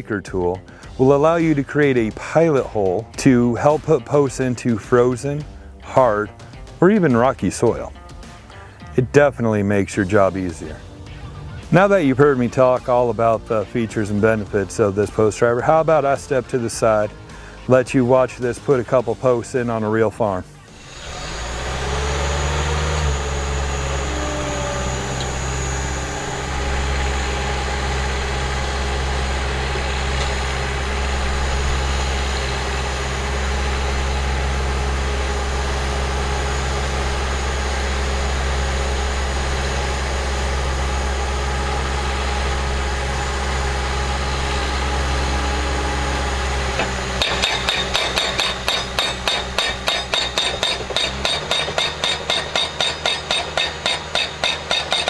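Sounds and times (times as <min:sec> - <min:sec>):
skid steer engine running: 0:20.5 - 0:55.0
post driver hammering: 0:20.8 - 0:40.0, 0:44.3 - 0:55.0.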